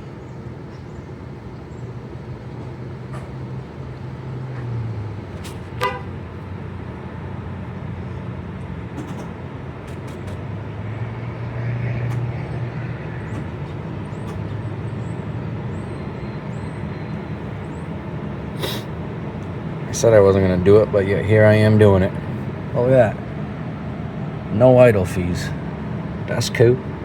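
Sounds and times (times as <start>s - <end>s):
steady low hum: 0.0s - 27.0s
traffic noise: 0.0s - 27.0s
vehicle passing: 1.4s - 27.0s
short horn beep: 5.8s - 6.2s.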